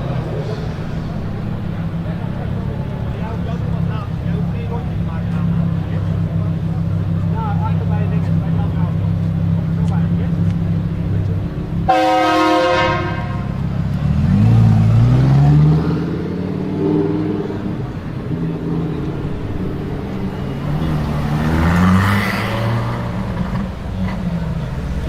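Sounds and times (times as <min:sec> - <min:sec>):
horn toot: 0:11.9 - 0:13.6.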